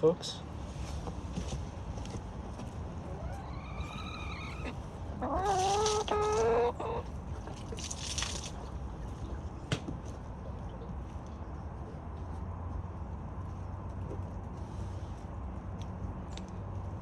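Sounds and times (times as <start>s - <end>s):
chickens calling: 2.9s - 7.8s.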